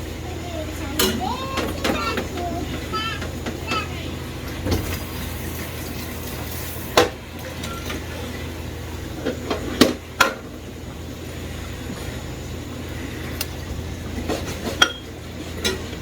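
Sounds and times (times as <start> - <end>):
utensils knocking against dishes: 1.0 - 3.9, 14.3 - 16.0.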